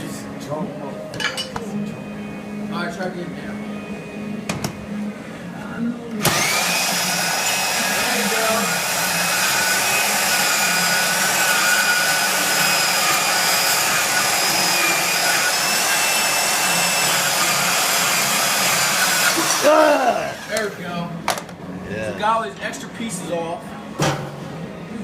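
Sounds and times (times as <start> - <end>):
power tool cutting steel: 6.2 - 21.0.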